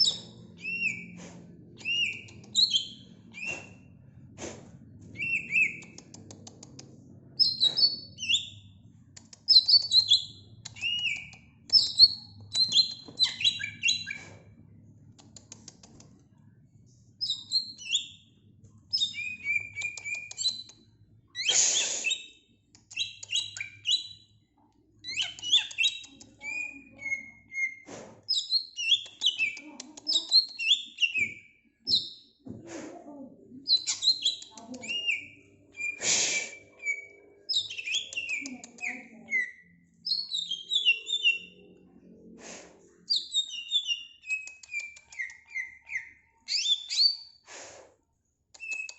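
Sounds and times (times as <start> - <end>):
bird chattering and whistling: 1.8 - 3.8, 5.2 - 6.1, 9.5 - 14.3, 18.9 - 20.8, 21.4 - 24.2, 25.0 - 32.1, 33.7 - 41.6, 43.1 - 47.3
bird singing whistled notes: 5.2 - 5.8, 33.7 - 41.6, 43.1 - 47.4.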